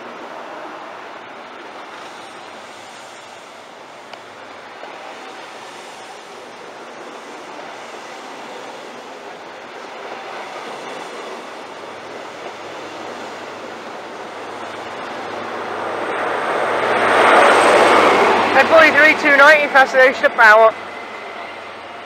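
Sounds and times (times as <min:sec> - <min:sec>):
diesel train rumble: 0:00.0 - 0:22.0.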